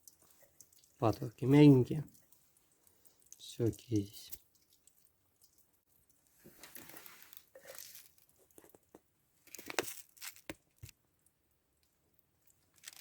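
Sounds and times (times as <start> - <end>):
packet tearing and rustling: 9.5 - 10.8, 12.8 - 13.0.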